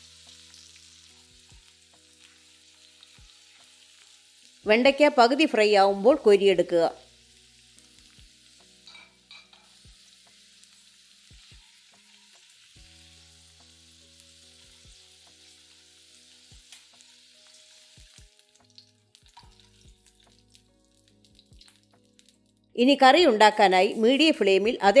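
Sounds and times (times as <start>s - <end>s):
okra sizzling in oil: 0.0s - 25.0s.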